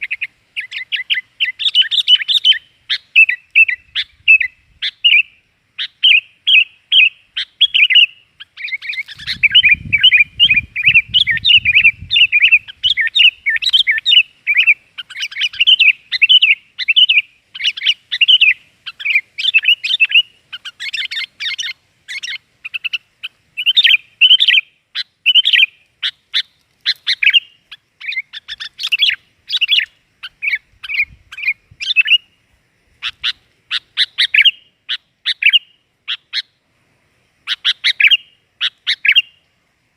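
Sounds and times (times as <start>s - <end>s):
bulbuls chattering and singing: 6.0s - 24.6s.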